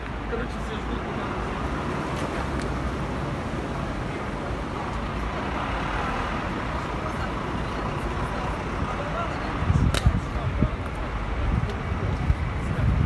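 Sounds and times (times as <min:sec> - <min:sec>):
strong wind on microphone: 0:08.6 - 0:13.0.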